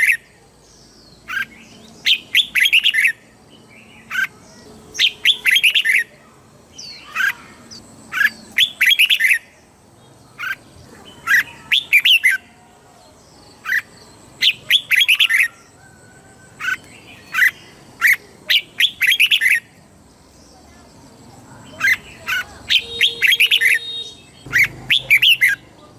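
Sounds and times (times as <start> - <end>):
bulbul singing whistled notes: 1.3 - 3.2, 5.0 - 6.2, 8.1 - 9.6, 13.7 - 19.8, 21.8 - 25.7.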